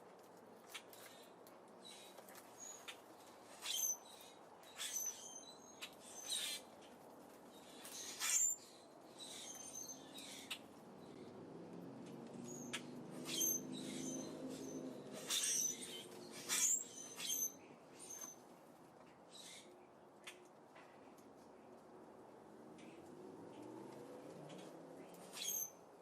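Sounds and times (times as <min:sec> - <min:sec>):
small birds chirping: 0:00.7 - 0:06.8, 0:07.5 - 0:11.3, 0:12.4 - 0:18.4.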